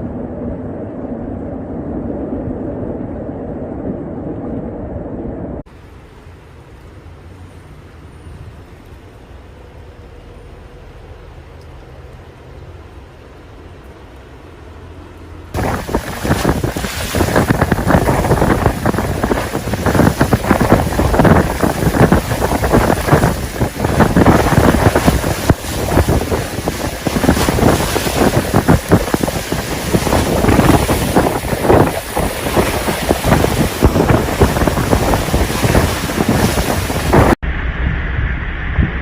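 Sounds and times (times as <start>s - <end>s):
strong wind buffeting microphone: 0.0s - 5.7s, 15.5s - 39.0s.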